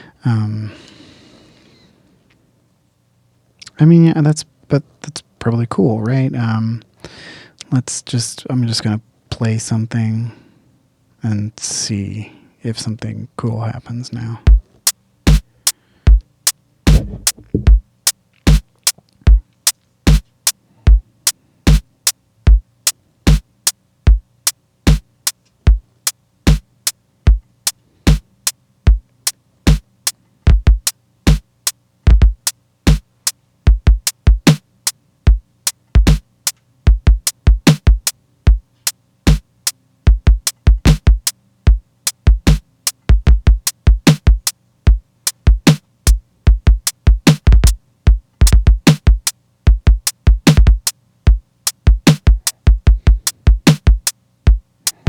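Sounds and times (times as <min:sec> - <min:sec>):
drum machine beat: 0:16.9 - 0:17.9, 0:24.9 - 0:25.8, 0:30.5 - 0:31.4, 0:32.1 - 0:33.0, 0:33.7 - 0:34.6, 0:36.0 - 0:36.2, 0:36.9 - 0:38.6, 0:40.1 - 0:55.0.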